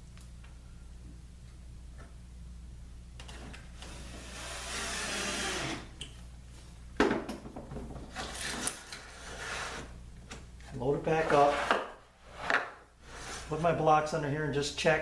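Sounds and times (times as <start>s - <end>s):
cordless drill whirring: 3.8s - 5.9s.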